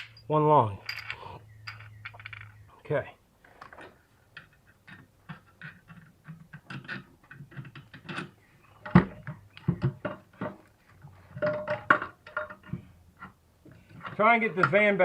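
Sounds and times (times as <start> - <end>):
small metal clinks and knocks: 0.0 - 2.7.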